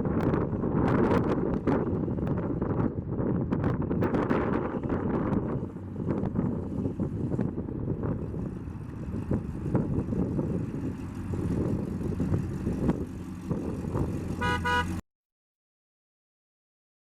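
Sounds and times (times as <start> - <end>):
wind noise: 0.0 - 14.8
engine rumbling: 0.0 - 15.0
car horn toots: 14.4 - 15.0.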